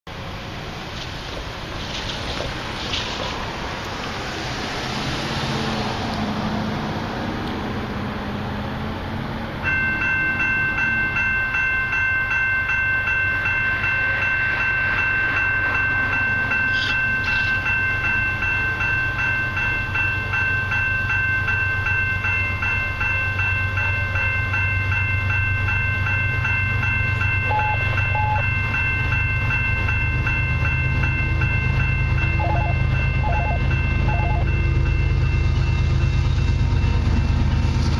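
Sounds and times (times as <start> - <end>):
distant freight train rumbling: 0.1 - 37.9
pulsing high-toned ringing: 9.6 - 37.9.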